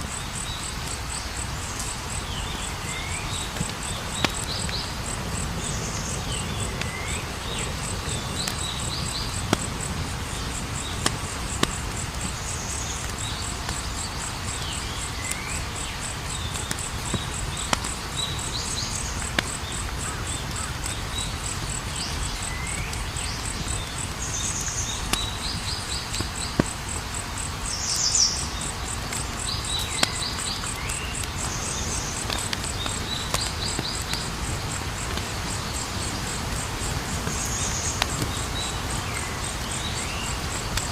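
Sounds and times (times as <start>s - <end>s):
campfire crackling and popping: 0.0s - 40.9s
crickets trilling: 0.0s - 40.9s.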